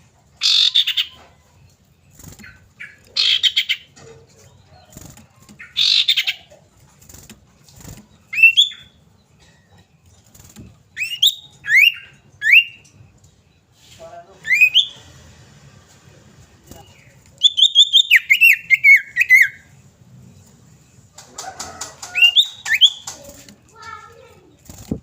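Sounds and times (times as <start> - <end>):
bird rasping chatters: 2.1 - 4.1, 4.8 - 9.0.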